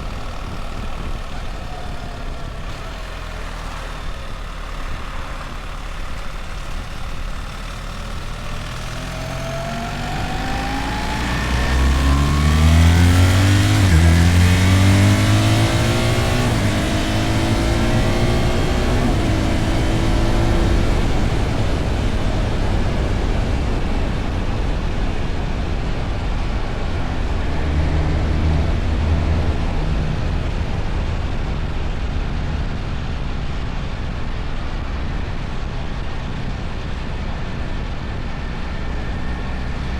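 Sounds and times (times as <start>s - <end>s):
constant rushing noise: 0.0s - 39.9s
motorcycle engine accelerating: 0.0s - 39.9s.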